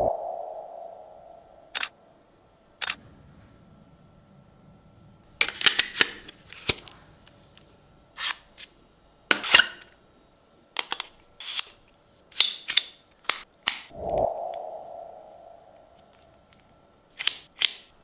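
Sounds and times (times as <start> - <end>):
plastic parts clicking and snapping: 10.8 - 13.9, 17.2 - 17.9.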